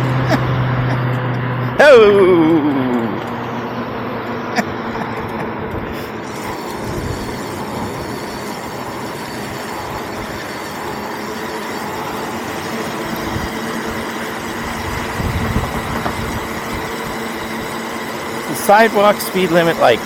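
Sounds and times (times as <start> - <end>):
vehicle drive whine: 0.0 - 20.0
wind rumbling on microphone: 14.6 - 17.0.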